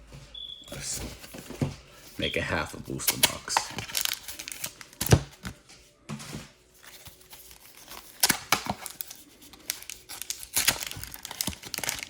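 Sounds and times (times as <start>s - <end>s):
foil wrappers crinkling and tearing: 0.8s - 5.6s, 6.7s - 12.0s.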